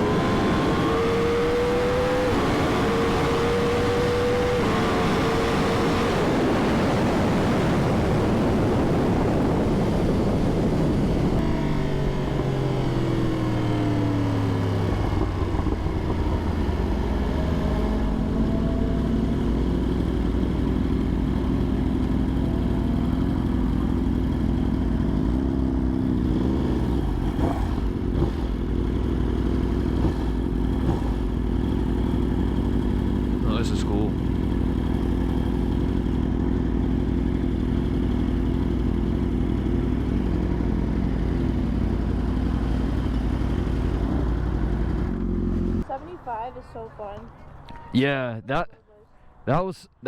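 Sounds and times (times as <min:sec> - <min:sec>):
wind noise: 0:00.0 - 0:21.2
motorcycle engine: 0:00.0 - 0:46.0.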